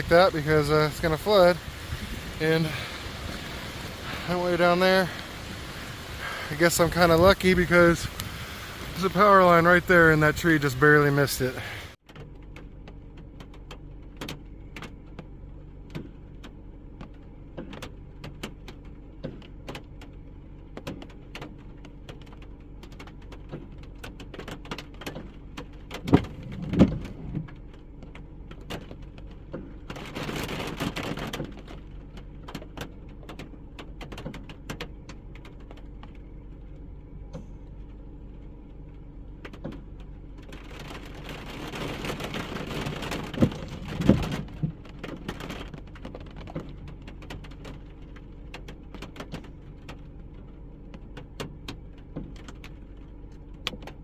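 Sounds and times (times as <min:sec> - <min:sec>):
vehicle engine humming: 0:00.0 - 0:54.0
light ticks: 0:08.1 - 0:08.4
thumps: 0:20.7 - 0:36.2.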